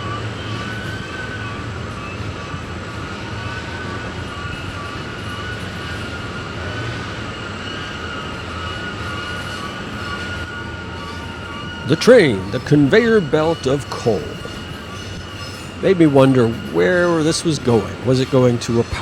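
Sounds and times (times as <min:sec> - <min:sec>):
train cars rumbling: 0:00.0 - 0:19.0
high-pitched tones: 0:10.0 - 0:19.0.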